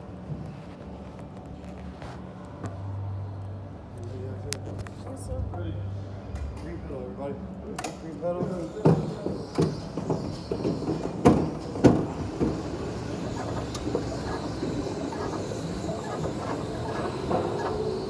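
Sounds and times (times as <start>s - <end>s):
go-kart rumbling and rattling: 8.8s - 18.0s.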